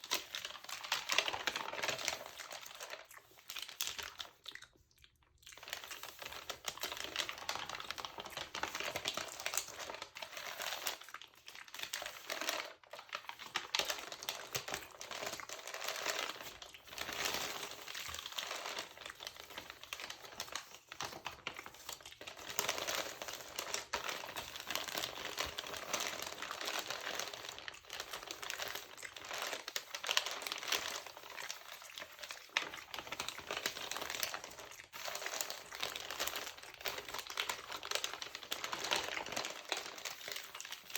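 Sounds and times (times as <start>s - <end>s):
glossy paper pages crinkling: 0.0s - 4.6s, 5.5s - 40.9s.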